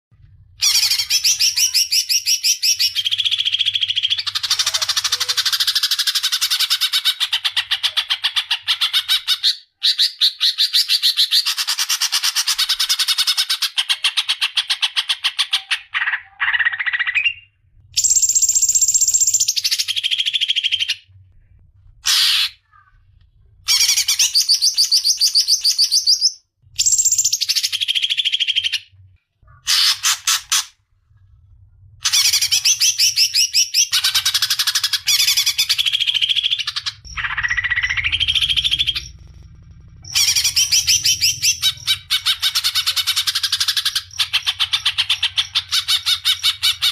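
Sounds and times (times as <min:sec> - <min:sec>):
songbird singing: 0:32.0 - 0:46.9.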